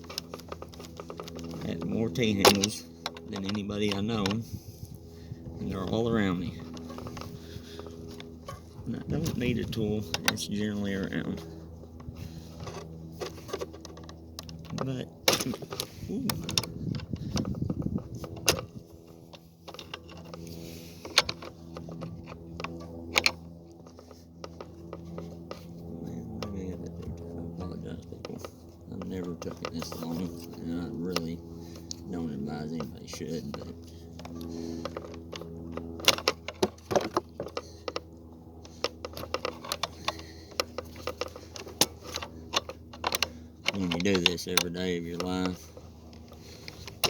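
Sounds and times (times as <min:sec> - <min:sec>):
metal hand tools clicking and tapping: 0:00.0 - 0:04.4, 0:38.7 - 0:45.7
hand tools clicking and clinking: 0:00.0 - 0:04.6, 0:12.0 - 0:47.0
steady low hum: 0:00.0 - 0:47.0.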